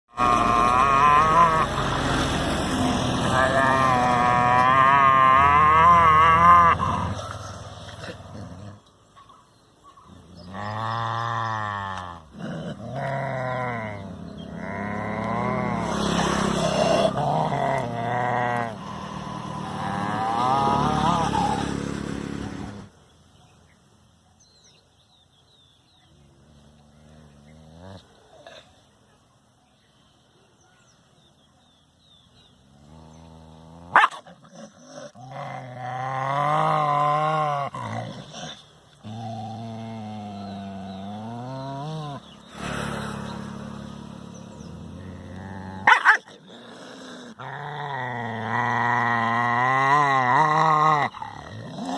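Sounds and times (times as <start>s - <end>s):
dog growling: 10.1s - 22.9s, 26.2s - 28.8s, 32.7s - 51.9s
dog barking: 33.9s - 34.3s, 45.8s - 46.3s.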